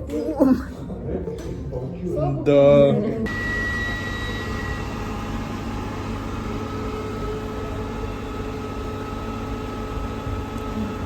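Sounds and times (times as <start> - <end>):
faint steady whines: 3.3 - 11.0.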